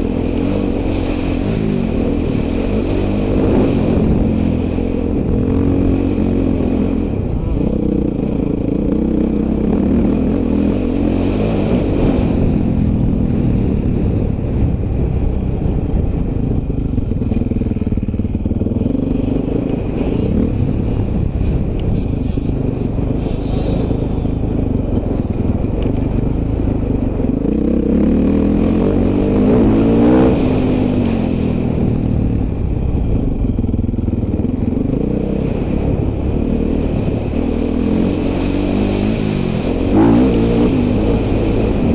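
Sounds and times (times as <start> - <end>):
dirt bike engine revving: 0.0 - 12.7, 15.7 - 31.5, 34.3 - 41.9.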